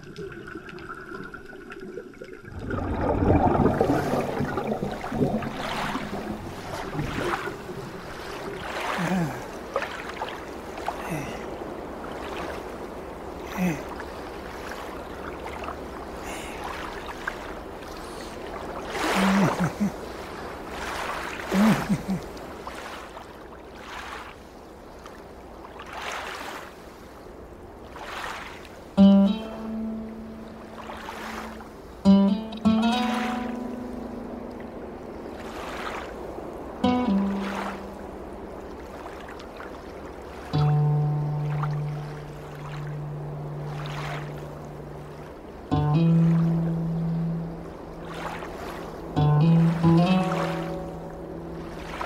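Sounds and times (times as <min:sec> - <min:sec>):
water rushing and sloshing: 0:00.0 - 0:52.0.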